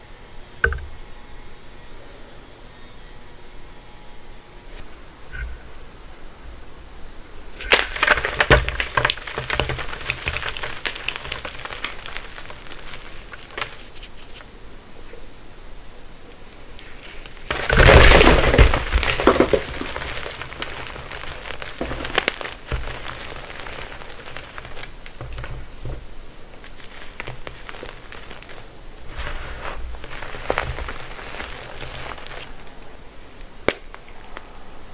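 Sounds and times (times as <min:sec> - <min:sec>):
chalk crunching and crackling: 0:07.6 - 0:14.5, 0:16.7 - 0:32.9.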